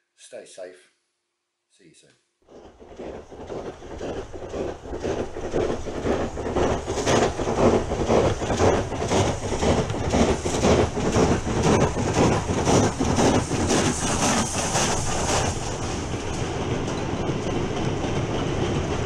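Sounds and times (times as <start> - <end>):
train wheels clattering on rails: 2.5 - 19.0.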